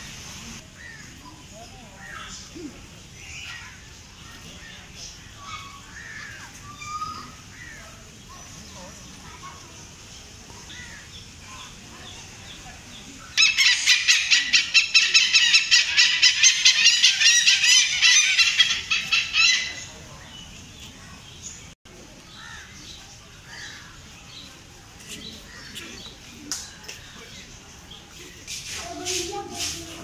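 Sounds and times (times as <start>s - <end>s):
bird harsh rapid calls: 13.4s - 19.9s.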